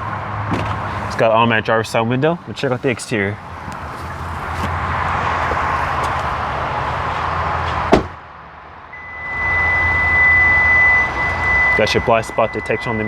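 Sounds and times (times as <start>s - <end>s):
car door shutting: 0.4s - 1.2s, 7.6s - 8.2s
high warning tone: 8.9s - 13.0s.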